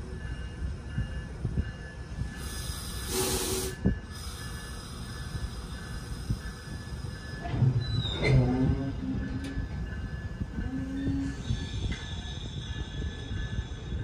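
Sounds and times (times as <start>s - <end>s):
train low rumble: 0.0s - 14.0s
air hiss: 2.4s - 7.2s.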